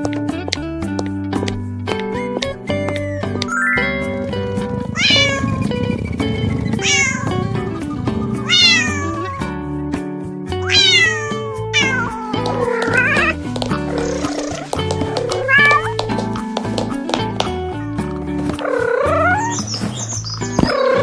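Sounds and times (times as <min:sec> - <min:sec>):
background music: 0:00.0 - 0:21.0
cat meowing: 0:04.9 - 0:05.9, 0:06.6 - 0:07.8, 0:08.4 - 0:09.5, 0:10.6 - 0:16.0, 0:18.6 - 0:19.7.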